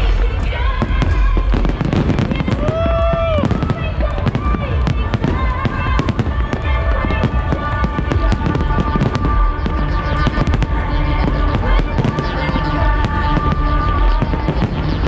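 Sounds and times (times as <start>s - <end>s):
electronic dance music: 0.0s - 15.0s
fireworks bangs and crackles: 0.0s - 15.0s.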